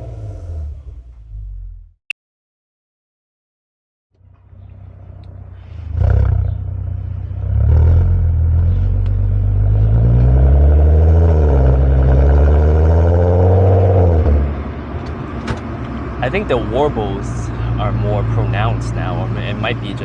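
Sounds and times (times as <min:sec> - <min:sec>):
car exhaust droning: 0:04.4 - 0:20.0.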